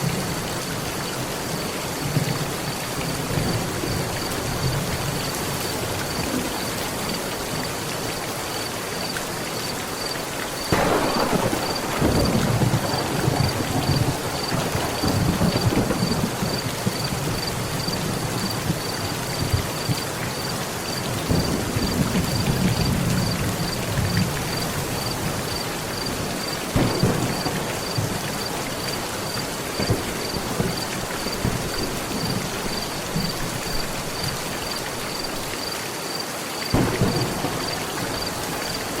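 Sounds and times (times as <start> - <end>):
heavy rain on metal roof: 0.0 - 39.0
thunder: 10.6 - 20.1, 20.9 - 34.4, 36.7 - 39.0.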